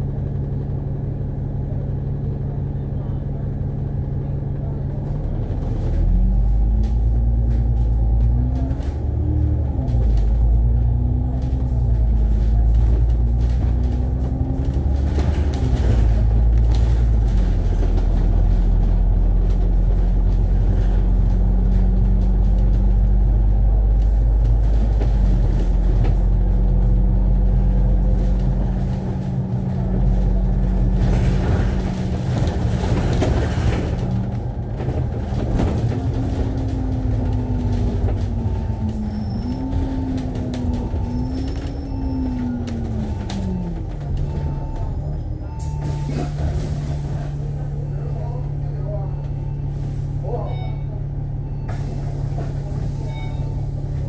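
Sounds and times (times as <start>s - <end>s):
bus engine rumble: 0.0s - 54.0s.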